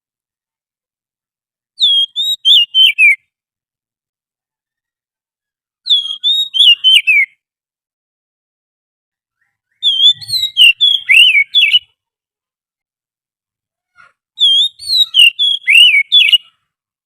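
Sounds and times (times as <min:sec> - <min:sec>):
bird singing whistled notes: 0:01.8 - 0:03.3, 0:05.8 - 0:07.4, 0:09.4 - 0:12.0, 0:14.4 - 0:16.7.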